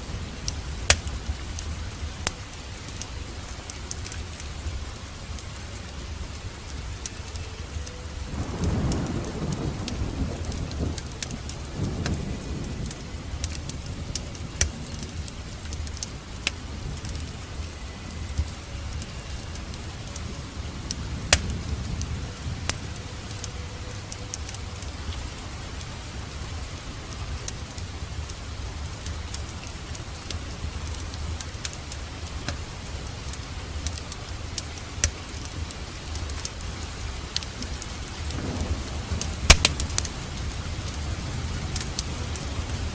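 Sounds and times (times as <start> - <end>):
fireplace crackling: 0.0 - 42.9
steady rain: 0.0 - 42.9
rumble of thunder: 6.1 - 31.5, 35.4 - 42.9.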